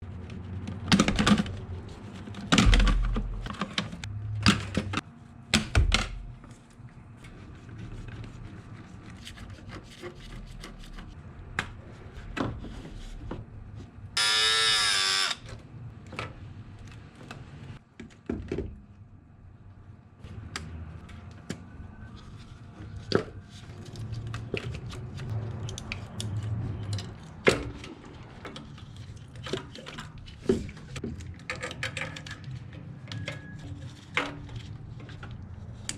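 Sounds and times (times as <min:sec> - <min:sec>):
power tool whirring: 0:14.2 - 0:15.5.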